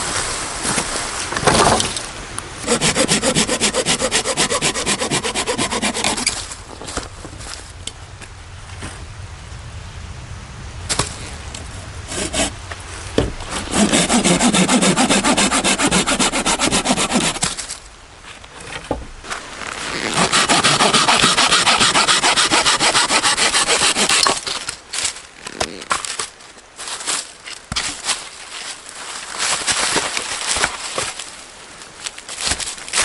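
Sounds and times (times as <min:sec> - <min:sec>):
hand saw cutting wood: 0:02.6 - 0:06.4, 0:12.1 - 0:12.6, 0:13.4 - 0:17.6, 0:19.9 - 0:24.6.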